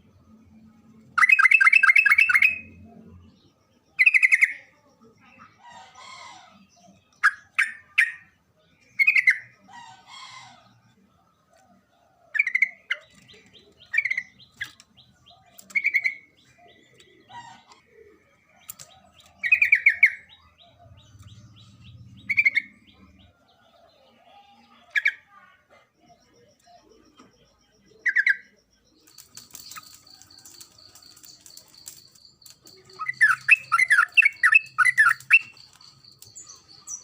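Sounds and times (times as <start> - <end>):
bird chirping: 0.0 - 37.0
faint steady high tone: 10.5 - 37.0.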